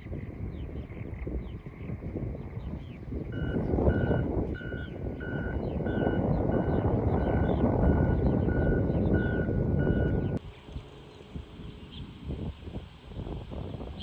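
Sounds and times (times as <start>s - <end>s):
vehicle reversing alarm beeping: 3.3s - 10.4s.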